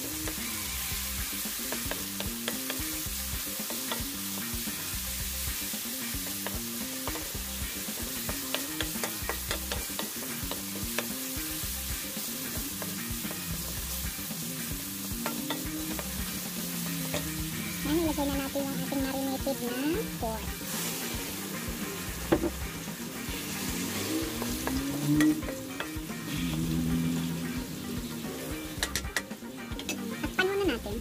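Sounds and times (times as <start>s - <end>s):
food sizzling in hot oil: 0.0s - 31.0s
spoon clicking against pan: 1.6s - 2.9s, 3.7s - 4.2s, 8.4s - 11.2s, 28.8s - 30.1s.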